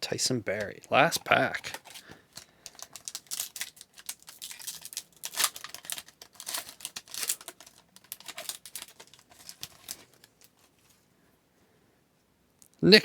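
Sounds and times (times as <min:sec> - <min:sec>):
foil wrapper tearing and crinkling: 0:00.5 - 0:10.7.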